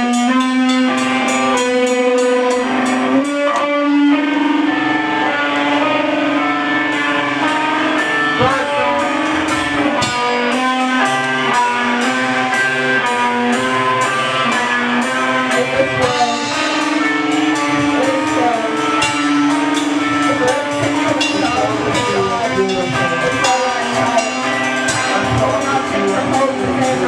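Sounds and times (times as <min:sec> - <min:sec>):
cymbal strokes: 0:00.0 - 0:27.0
drums: 0:00.0 - 0:27.0
guitar chords ringing: 0:00.0 - 0:27.0.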